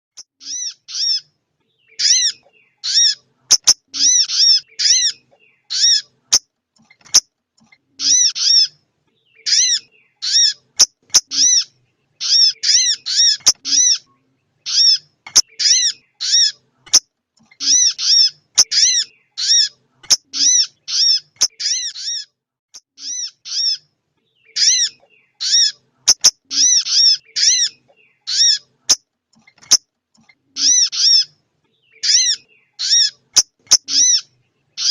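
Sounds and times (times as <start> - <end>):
bird chirping calls: 0.2 - 34.9.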